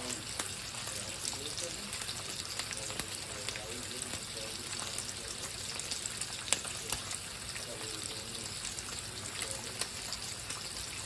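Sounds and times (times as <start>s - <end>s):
food sizzling in a frying pan: 0.0s - 11.0s
sharp crackling pops: 5.8s - 7.3s.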